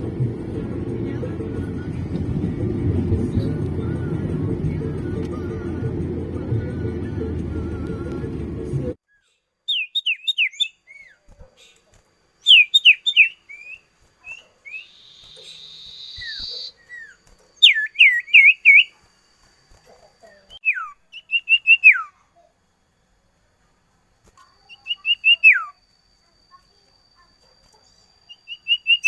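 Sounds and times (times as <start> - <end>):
music: 0.0 - 9.0
bird whistling falling notes: 12.4 - 18.9.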